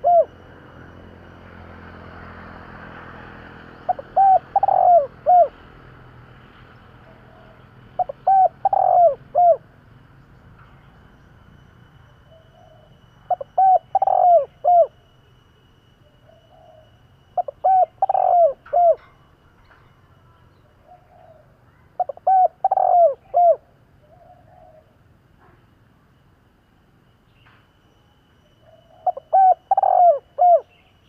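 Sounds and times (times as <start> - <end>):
dove cooing: 0.0 - 0.4, 3.8 - 5.7, 7.1 - 9.8, 12.3 - 15.0, 16.2 - 19.1, 20.8 - 25.6, 28.6 - 30.8.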